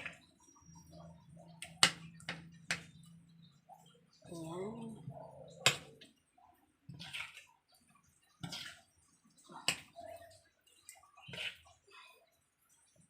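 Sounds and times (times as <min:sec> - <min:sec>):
wet slaps of stirring batter: 0:00.0 - 0:13.0.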